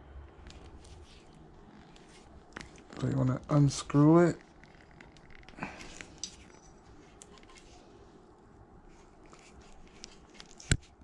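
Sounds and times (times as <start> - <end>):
small clicks and handling noises: 0.2 - 3.2, 4.3 - 7.8, 8.9 - 11.0.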